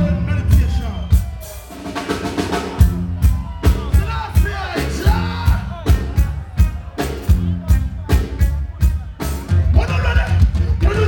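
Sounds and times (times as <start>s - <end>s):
bass line: 0.0s - 11.0s
drum kit beating: 0.0s - 11.0s
reggae band playing: 0.0s - 11.0s
person singing: 2.6s - 7.2s.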